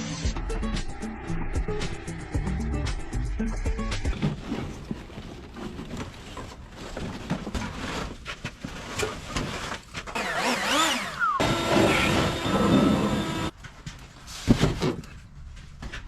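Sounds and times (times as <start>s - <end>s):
items being handled: 4.1s - 10.3s.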